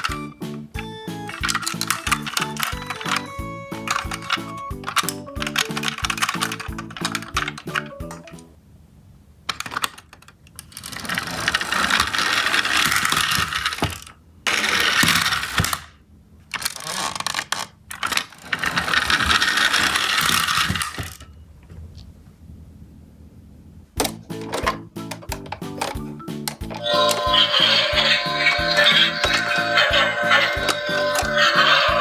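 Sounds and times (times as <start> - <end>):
toy truck wheels and gears whirring: 0.0 - 8.4, 9.5 - 21.3, 26.5 - 32.0
background music: 0.0 - 8.5, 24.1 - 32.0.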